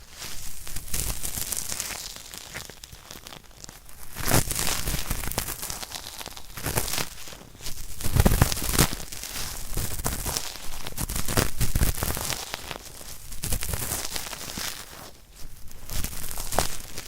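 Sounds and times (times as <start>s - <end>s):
cotton swab scraping microphone: 4.0s - 17.0s.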